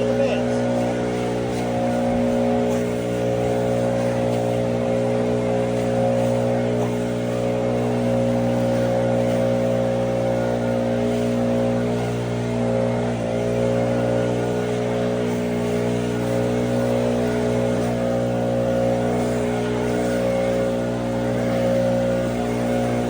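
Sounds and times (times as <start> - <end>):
engine running steadily: 0.0 - 23.0.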